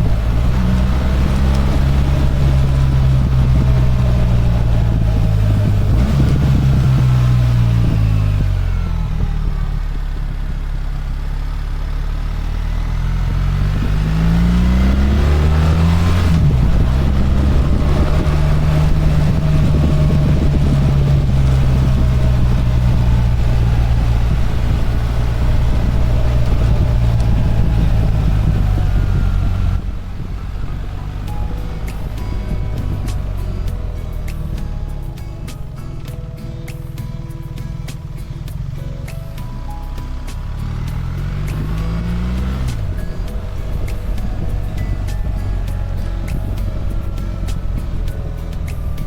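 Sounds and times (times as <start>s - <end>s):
wind noise: 0.0s - 10.7s, 13.2s - 49.0s
motorcycle engine running: 0.0s - 49.0s.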